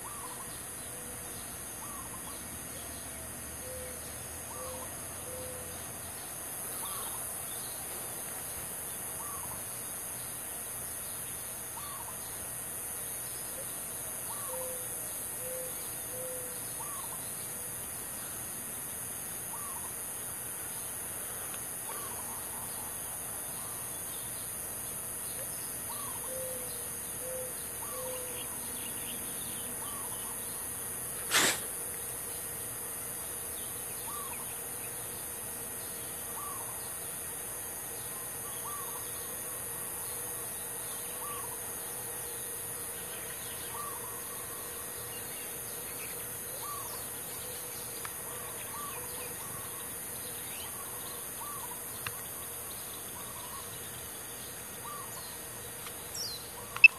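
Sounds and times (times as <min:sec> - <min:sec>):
steady high hiss: 0:00.0 - 0:56.9
small birds chirping: 0:20.6 - 0:32.5, 0:45.1 - 0:56.9
sharp knock: 0:31.3 - 0:31.7.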